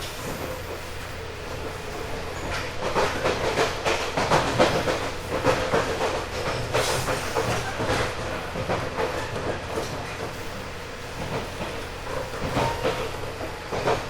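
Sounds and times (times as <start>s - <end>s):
train wheels rolling: 0.0s - 14.0s
wheels clacking over rail joints: 0.0s - 14.0s.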